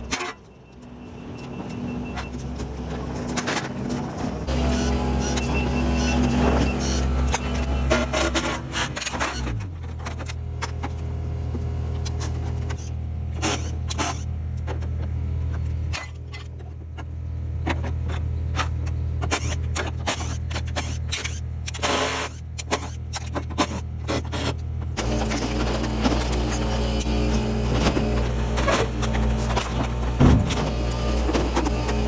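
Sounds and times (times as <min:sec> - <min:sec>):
heavy machine engine droning: 0:00.0 - 0:18.2, 0:25.0 - 0:32.0
metal clanks and knocks: 0:25.0 - 0:32.0.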